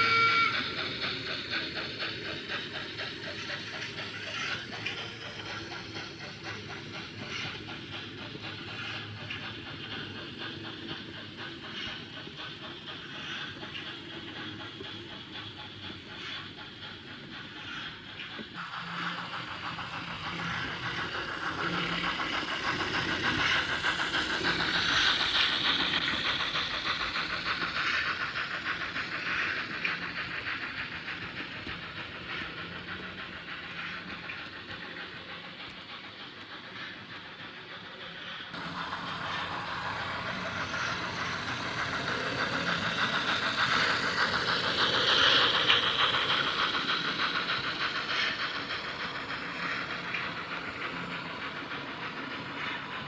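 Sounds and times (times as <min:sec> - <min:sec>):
model train rolling on track: 0:00.0 - 0:53.0
rapid clicking of wheels on rails: 0:00.0 - 0:53.0.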